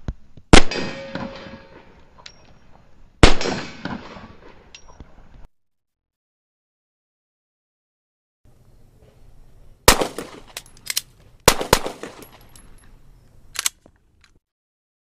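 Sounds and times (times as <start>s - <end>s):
handgun shots: 9.9s - 12.4s.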